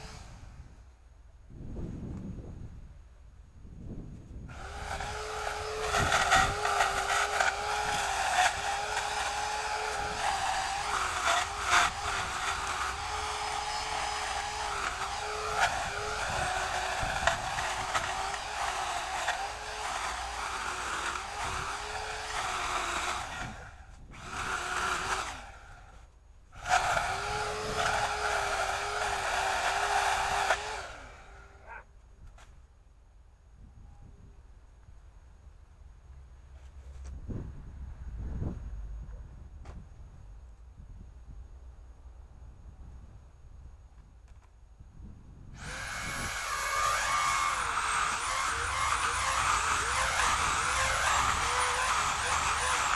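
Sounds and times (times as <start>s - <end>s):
chainsaw running at high speed: 4.5s - 25.8s, 26.6s - 31.5s, 45.6s - 52.9s.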